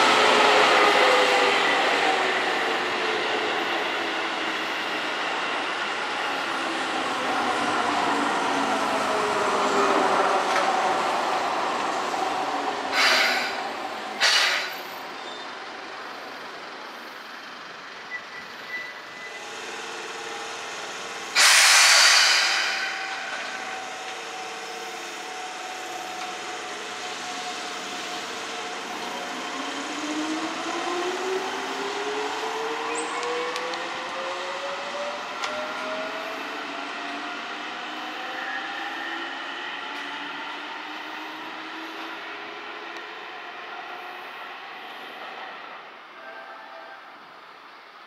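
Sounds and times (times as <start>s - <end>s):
steady train hum: 0.0s - 48.0s
train motor and gear whine: 10.0s - 47.5s
short air hisses: 12.9s - 13.6s, 14.2s - 14.7s, 21.3s - 23.1s
loud air-brake hiss: 12.9s - 14.8s, 21.2s - 23.4s.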